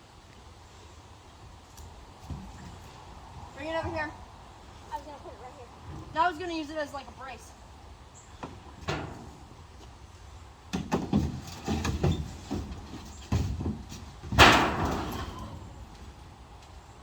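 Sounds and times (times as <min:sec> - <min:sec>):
knocks and clunks: 0:08.4 - 0:09.4, 0:10.7 - 0:15.9.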